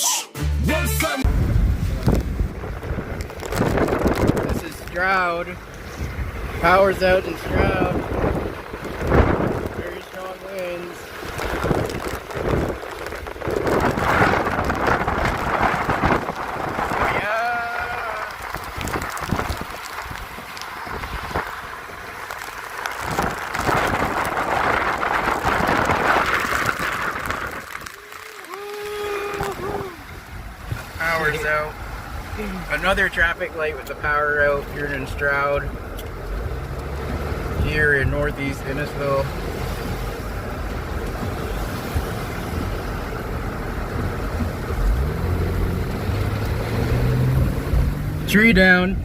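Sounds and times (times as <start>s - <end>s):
car engine and road rumble: 0.0s - 49.0s
storm wind gusting: 1.2s - 10.2s, 10.8s - 32.4s
driving rain: 1.2s - 49.0s.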